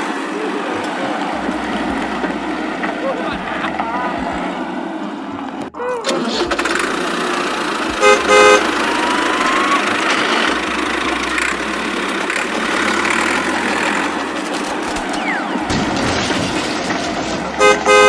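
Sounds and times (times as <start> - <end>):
tractor engine running: 0.0 - 18.0
short horn toots: 7.9 - 11.7, 17.6 - 18.0.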